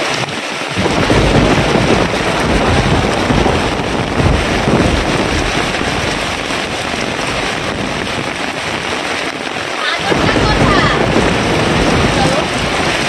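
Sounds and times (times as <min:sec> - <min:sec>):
heavy rain pouring: 0:00.0 - 0:13.0
low gusty rumble: 0:00.8 - 0:13.0.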